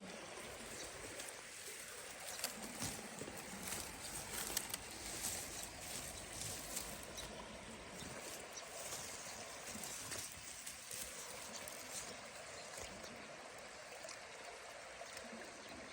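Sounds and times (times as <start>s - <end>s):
creek rushing: 0.0s - 15.9s
nestling wrens chirping: 0.4s - 12.9s.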